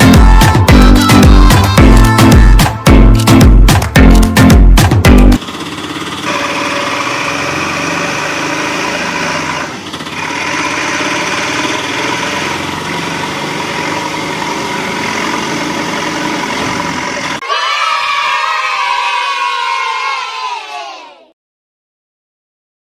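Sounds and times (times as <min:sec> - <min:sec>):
toy motor whirring: 0:06.2 - 0:12.6.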